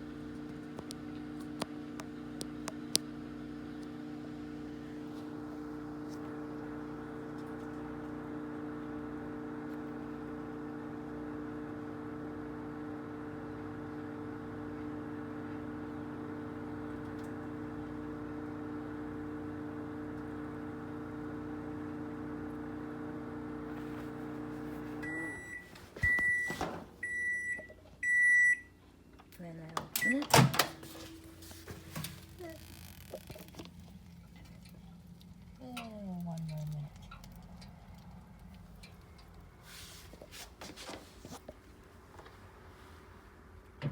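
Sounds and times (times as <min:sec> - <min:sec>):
microwave oven humming: 0:00.0 - 0:43.9
microwave beeps: 0:25.0 - 0:28.8, 0:30.0 - 0:32.2.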